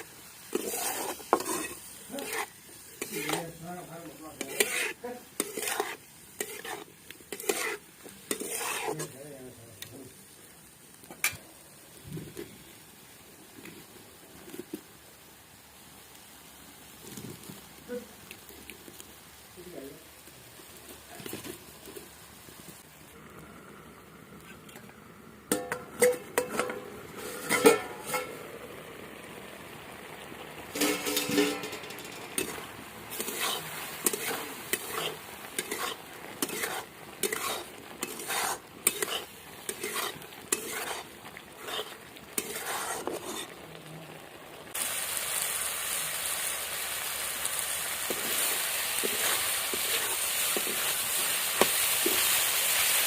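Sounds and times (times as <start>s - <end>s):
food sizzling in hot oil: 0.0s - 53.0s
metal spoon scraping a pot: 0.5s - 3.6s, 4.3s - 9.2s, 25.5s - 28.4s, 30.7s - 43.6s.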